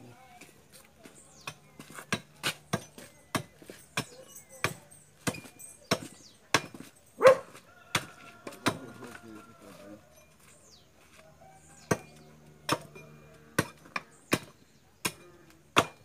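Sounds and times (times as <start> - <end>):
firewood being chopped: 0.4 - 9.2, 11.1 - 16.0.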